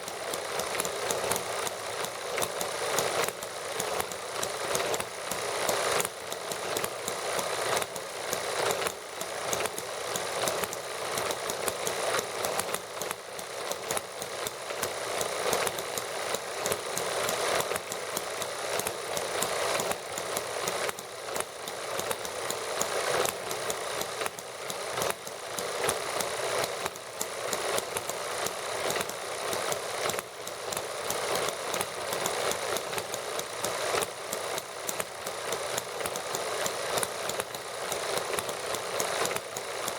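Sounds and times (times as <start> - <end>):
model engines running: 0.0 - 39.9.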